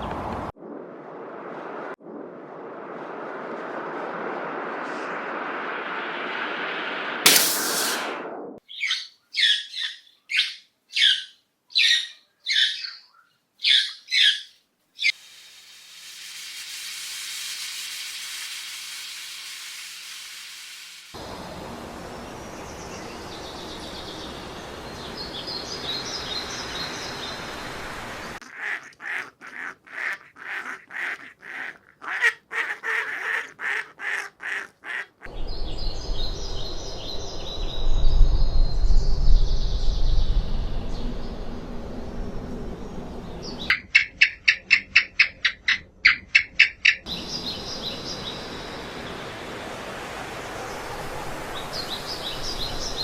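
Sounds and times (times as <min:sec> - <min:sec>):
small birds chirping: 0:08.6 - 0:15.2, 0:42.8 - 0:49.3
poultry calling: 0:28.4 - 0:35.3.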